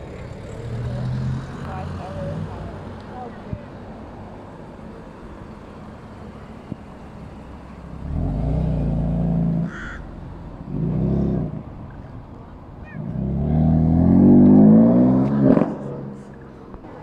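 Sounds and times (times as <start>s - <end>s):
car engine revving: 6.4s - 12.1s, 12.8s - 17.0s.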